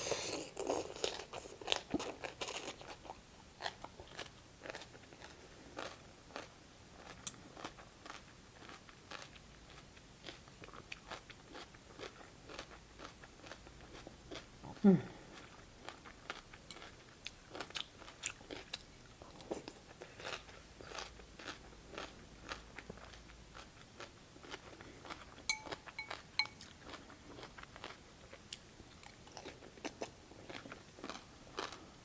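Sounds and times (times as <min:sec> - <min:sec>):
crunching and chewing: 0:00.0 - 0:14.5, 0:15.3 - 0:32.0.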